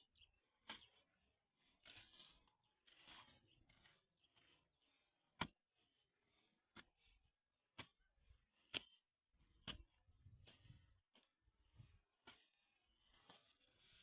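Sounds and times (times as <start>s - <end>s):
faint rustling and scraping: 0.6s - 4.7s, 9.6s - 14.0s.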